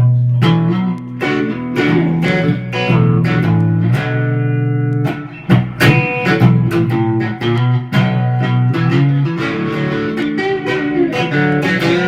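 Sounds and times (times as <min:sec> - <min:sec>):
blues guitar riff: 0:00.0 - 0:12.0.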